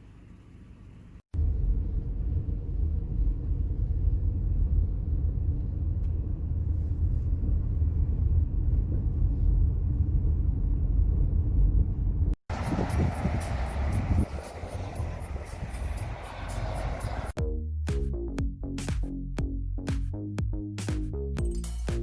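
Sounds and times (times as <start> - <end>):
car driving low rumble: 0.2 - 17.4.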